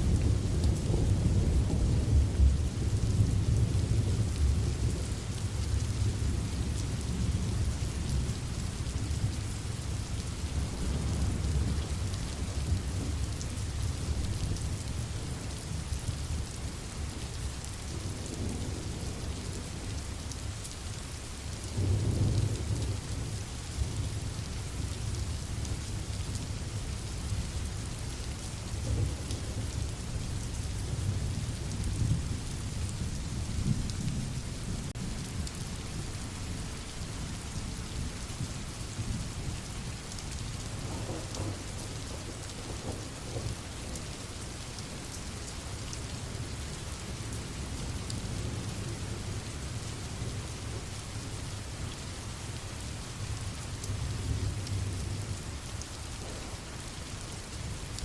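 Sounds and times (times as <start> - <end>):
steady rain falling: 0.0 - 58.0
thunder rumbling: 40.7 - 44.0, 56.2 - 56.6.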